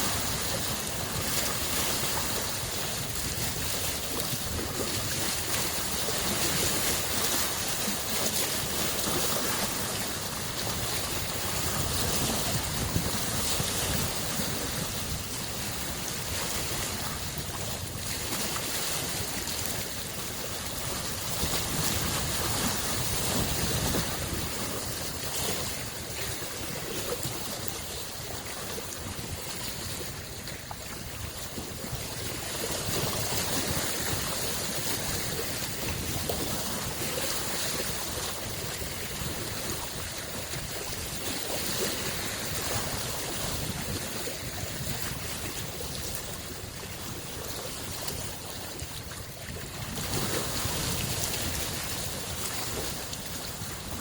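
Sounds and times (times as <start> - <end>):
small waves washing on shore: 0.0 - 54.0.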